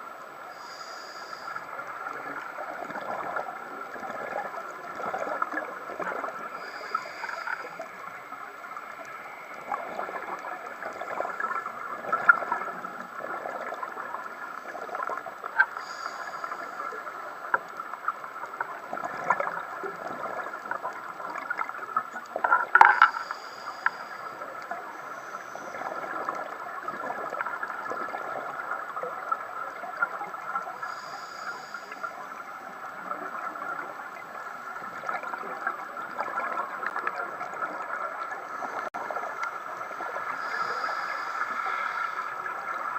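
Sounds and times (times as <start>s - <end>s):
muffled underwater gurgle: 0.0s - 42.9s
crackling clicks: 1.4s - 28.6s, 33.0s - 42.9s.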